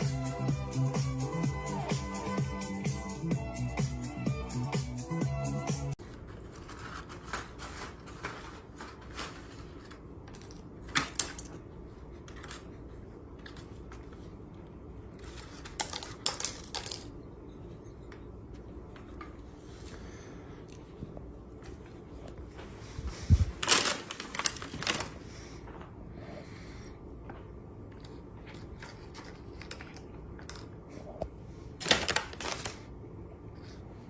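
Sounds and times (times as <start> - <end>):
music: 0.0 - 6.0
low room hum: 5.9 - 34.0.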